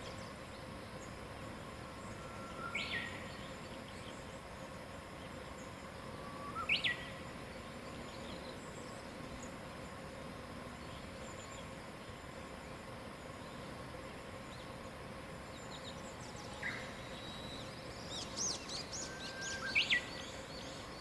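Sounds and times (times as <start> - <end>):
faint insect tones: 0.0 - 21.0
outdoor hiss: 0.0 - 21.0
songbird whistling: 15.8 - 21.0.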